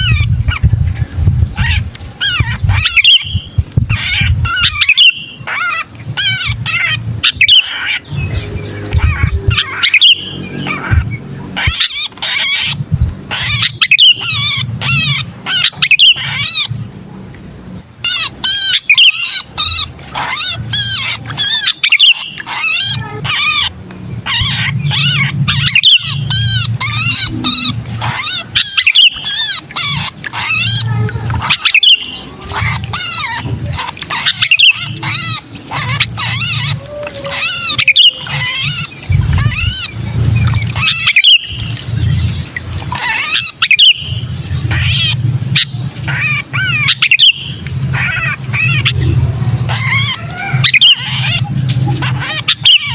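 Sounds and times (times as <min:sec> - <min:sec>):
low rumble: 0:00.0 - 0:04.9, 0:06.1 - 0:12.1, 0:23.7 - 0:28.4, 0:35.7 - 0:42.9, 0:44.1 - 0:52.5
bird distress calls: 0:00.0 - 0:17.0, 0:17.7 - 0:52.9.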